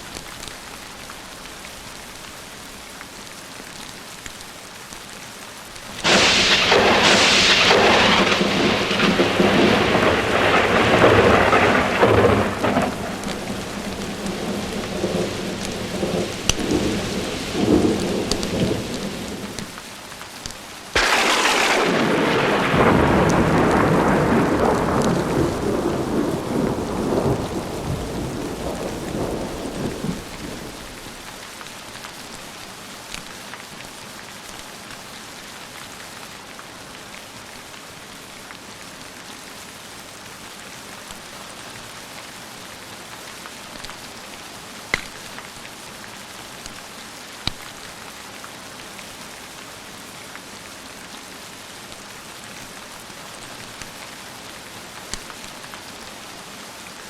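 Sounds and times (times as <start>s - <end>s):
rain falling: 0.0s - 57.0s
thunder rumbling: 6.0s - 19.7s, 21.0s - 31.2s
sharp pops: 21.0s - 21.8s.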